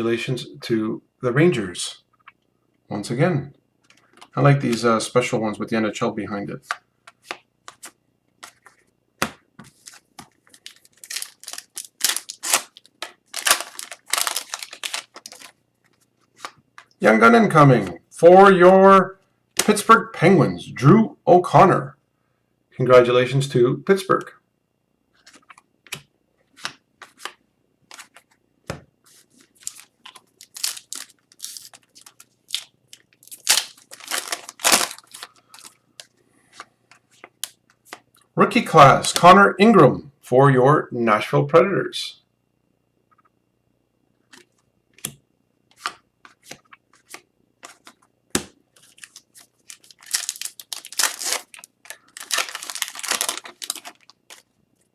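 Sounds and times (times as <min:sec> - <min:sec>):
wrappers crinkling and tearing: 0:09.7 - 0:15.6, 0:29.2 - 0:36.1, 0:48.8 - 0:54.5.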